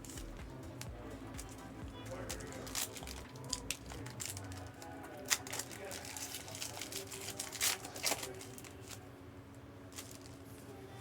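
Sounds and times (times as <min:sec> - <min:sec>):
handling trading cards: 0:00.0 - 0:10.7
faint steady hum: 0:00.0 - 0:11.0
crisp foil rustle: 0:01.4 - 0:09.0, 0:09.9 - 0:10.4.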